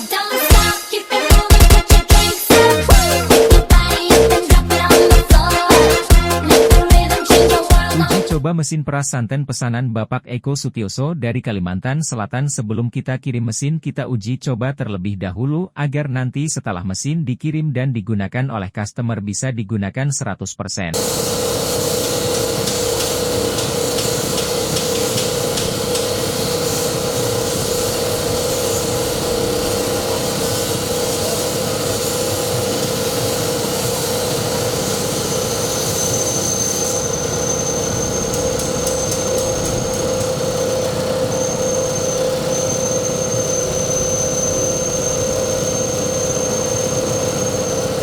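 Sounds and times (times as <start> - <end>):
press machine humming: 2.1 - 8.3, 21.0 - 48.0
thin high whine: 21.0 - 48.0.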